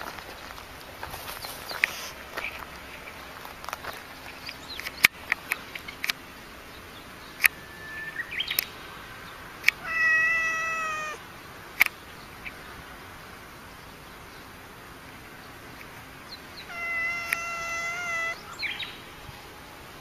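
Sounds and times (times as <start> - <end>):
cat meowing: 9.8 - 11.2, 16.6 - 18.4.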